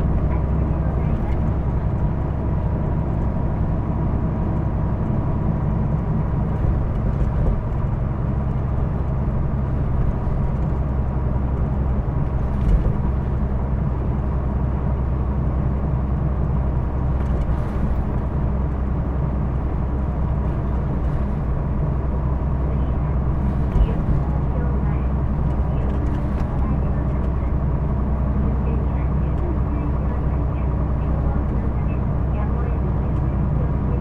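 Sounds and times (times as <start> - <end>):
bus diesel engine drone: 0.0 - 34.0
road noise: 0.0 - 34.0
bus bump: 12.2 - 13.6, 23.3 - 27.6.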